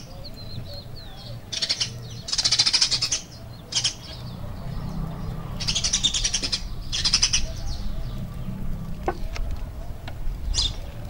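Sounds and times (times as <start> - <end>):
small birds chirping: 0.0 - 11.0
low background rumble: 3.2 - 11.0.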